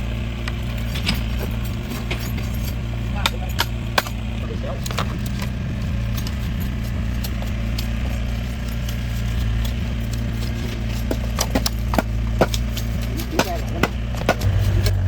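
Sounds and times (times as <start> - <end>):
low mechanical hum: 0.0 - 15.0
sharp knocks: 13.4 - 15.0.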